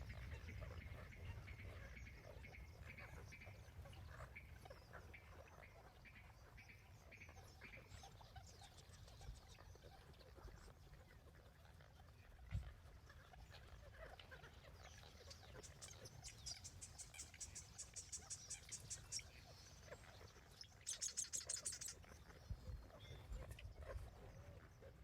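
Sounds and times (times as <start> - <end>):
woodpecker calling: 15.3 - 20.0, 20.6 - 22.1
woodpecker rattle: 20.8 - 22.0.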